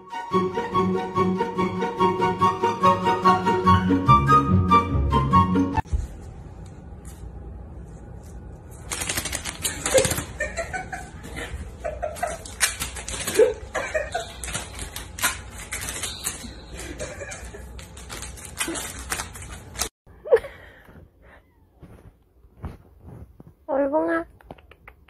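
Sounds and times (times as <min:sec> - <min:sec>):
paper rustling on tile floor: 0:05.9 - 0:19.9.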